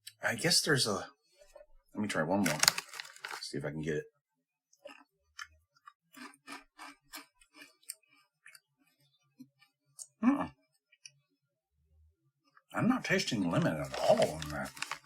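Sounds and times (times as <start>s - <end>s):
rice crackers crunching: 2.4s - 3.6s, 13.6s - 15.0s
person murmuring: 10.2s - 10.6s.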